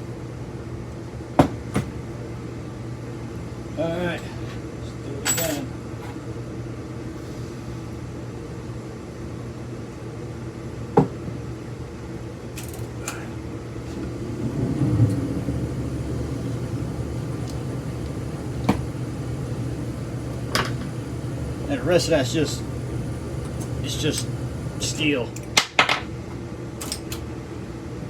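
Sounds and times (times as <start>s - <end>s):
low hum: 14.1s - 21.9s.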